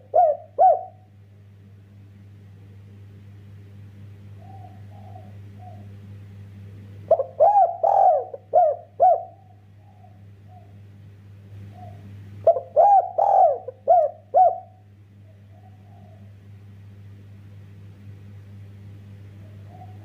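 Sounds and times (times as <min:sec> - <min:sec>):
dove cooing: 0:00.0 - 0:01.1, 0:04.4 - 0:06.0, 0:07.1 - 0:10.8, 0:11.6 - 0:16.4, 0:19.4 - 0:20.0
low electrical hum: 0:00.0 - 0:20.0.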